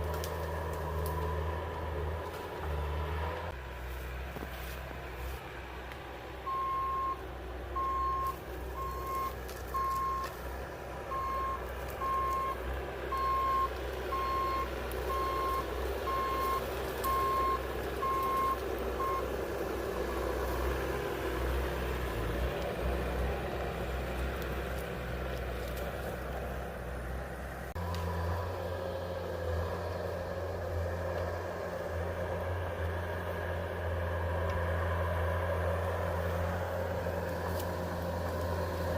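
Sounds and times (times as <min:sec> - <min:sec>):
engine running: 0:00.0 - 0:38.9
backup alarm beeping: 0:06.5 - 0:07.2, 0:07.8 - 0:10.3, 0:11.1 - 0:19.3.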